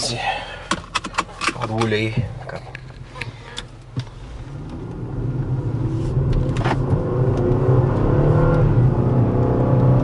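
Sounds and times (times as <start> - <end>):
car engine accelerating: 4.2 - 10.0.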